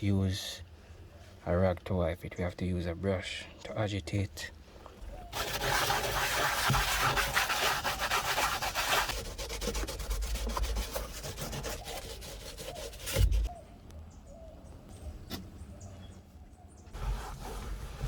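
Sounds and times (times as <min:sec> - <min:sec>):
brush scrubbing: 0:05.3 - 0:13.5, 0:17.0 - 0:18.0.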